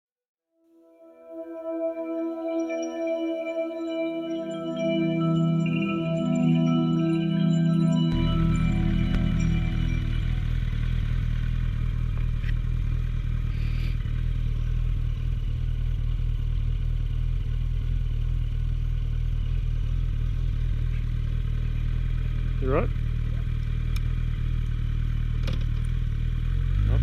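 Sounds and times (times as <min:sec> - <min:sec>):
motorcycle engine idling: 0:10.1 - 0:26.8.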